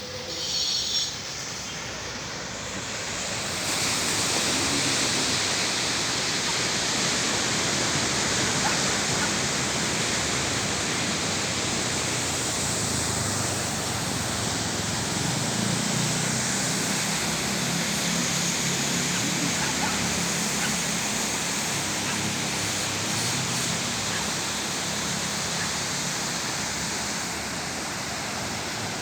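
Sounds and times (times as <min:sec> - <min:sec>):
sea surf breaking on a beach: 0:00.0 - 0:29.0.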